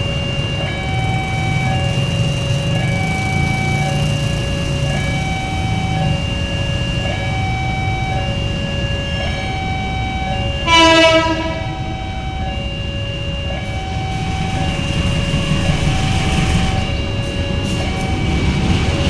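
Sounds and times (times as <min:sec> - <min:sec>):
train rumble: 0:00.0 - 0:19.0
two-tone electronic warning signal: 0:00.0 - 0:19.0
locomotive horn blast: 0:10.6 - 0:12.4.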